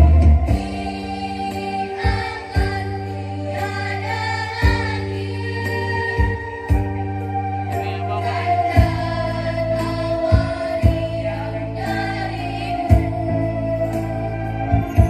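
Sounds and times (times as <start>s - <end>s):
girls' choir singing: 0.0s - 6.8s, 8.3s - 14.3s
instrumental backing track: 0.0s - 15.0s.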